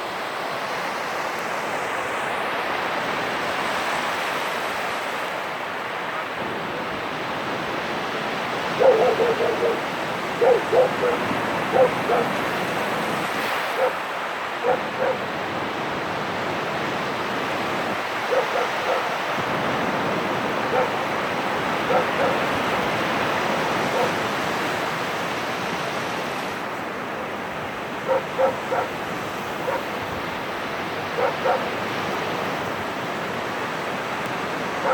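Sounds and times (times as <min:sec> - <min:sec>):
sea surf: 0:00.0 - 0:34.9
dog barking: 0:08.7 - 0:12.4, 0:13.7 - 0:15.3, 0:18.2 - 0:19.2, 0:20.7 - 0:21.1, 0:21.8 - 0:22.9, 0:23.8 - 0:24.3, 0:28.0 - 0:29.0, 0:29.6 - 0:29.9, 0:31.1 - 0:31.8.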